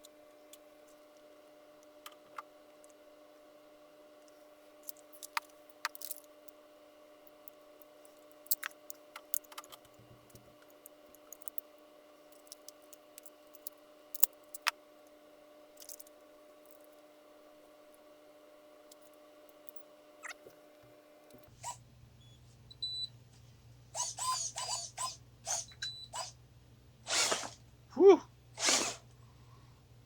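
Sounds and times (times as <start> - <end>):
low electrical hum: 0.0 - 30.0
small objects clicking and tapping: 4.8 - 6.6, 7.3 - 11.7, 12.3 - 14.8, 15.8 - 16.9.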